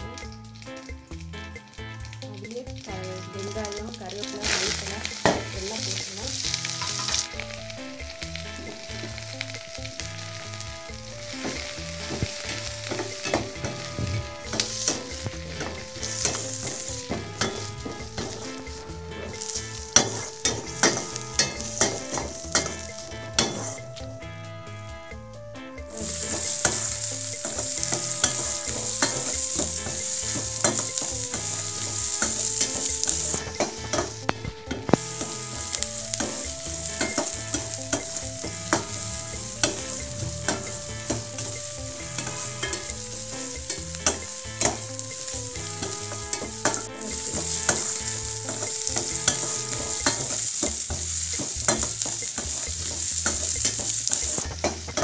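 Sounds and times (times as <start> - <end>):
onions sizzling in hot oil: 0.0 - 55.0
spatula scraping a pan: 4.4 - 7.5, 11.2 - 23.8, 26.0 - 55.0.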